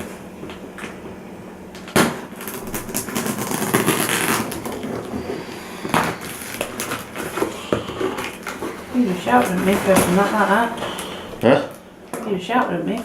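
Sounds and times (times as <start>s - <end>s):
cardboard and tape tearing: 2.0s - 11.2s.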